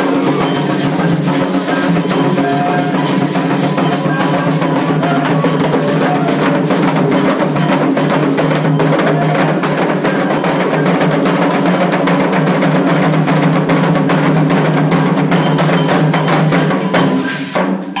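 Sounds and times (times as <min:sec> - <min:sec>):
fast hand drumming: 0:00.0 - 0:18.0.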